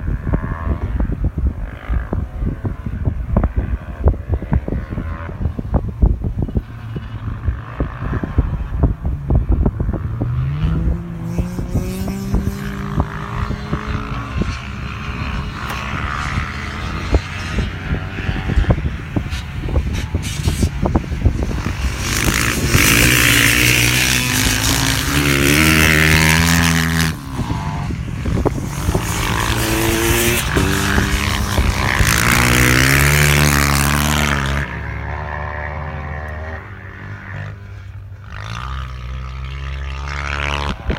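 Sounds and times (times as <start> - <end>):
dirt bikes passing loudly: 0.0 - 40.9
wind buffeting microphone: 0.0 - 40.9
dirt bike engine revving: 0.3 - 40.9.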